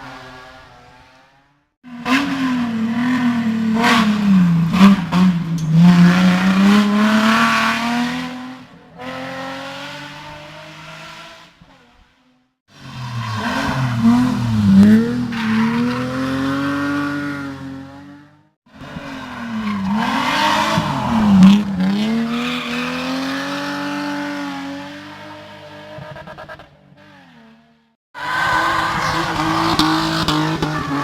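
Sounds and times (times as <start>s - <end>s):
race car engine revving: 1.9s - 11.6s, 12.7s - 27.5s, 28.2s - 31.0s
tyre squeal: 19.2s - 23.3s.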